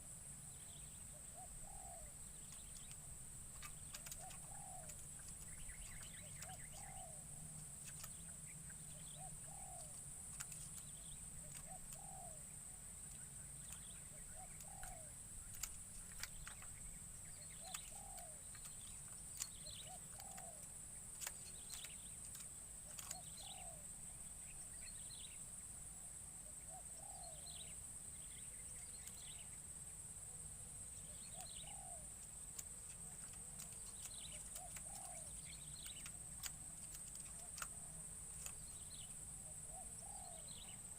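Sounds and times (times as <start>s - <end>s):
faint bird chirps: 0.0s - 40.9s
dove cooing: 1.1s - 2.9s, 3.5s - 8.1s, 8.9s - 12.8s, 13.7s - 16.6s, 17.4s - 18.8s, 19.4s - 20.7s, 22.8s - 23.8s, 26.7s - 27.5s, 31.1s - 32.0s, 33.0s - 38.6s, 39.4s - 40.8s.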